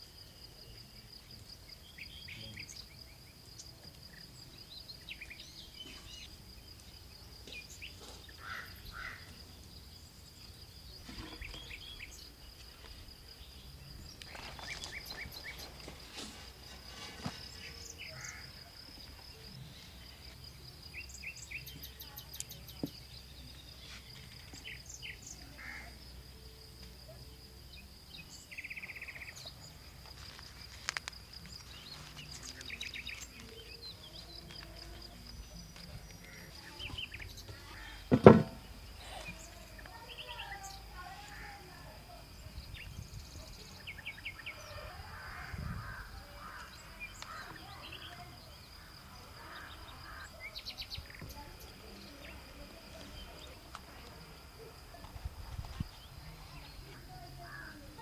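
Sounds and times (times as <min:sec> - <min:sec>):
bird chirps: 0:10.4 - 0:15.8, 0:30.5 - 0:38.2
sharp knock: 0:38.1 - 0:38.6.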